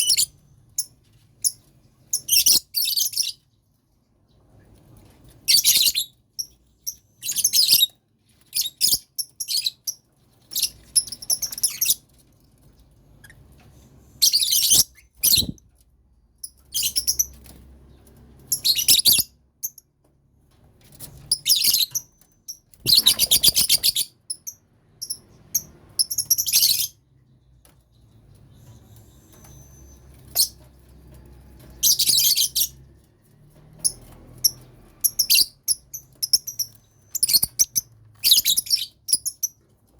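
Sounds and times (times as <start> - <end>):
lovebirds chirping shrilly: 14.2 - 15.6, 22.8 - 24.4.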